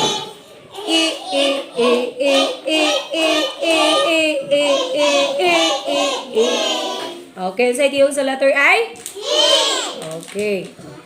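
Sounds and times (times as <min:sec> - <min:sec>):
young children singing: 0:00.0 - 0:07.3, 0:09.2 - 0:10.0.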